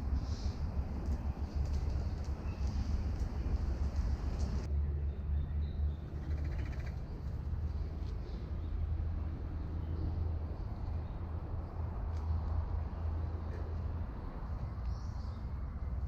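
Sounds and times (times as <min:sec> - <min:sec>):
faint bird calls: 0:06.2 - 0:07.2.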